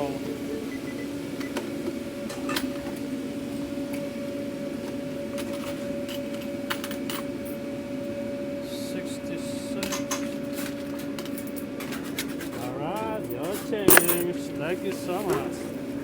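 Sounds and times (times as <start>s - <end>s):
steady equipment hum: 7.4s - 11.6s, 12.6s - 16.0s
keys pressed on payment terminal: 13.9s - 14.3s.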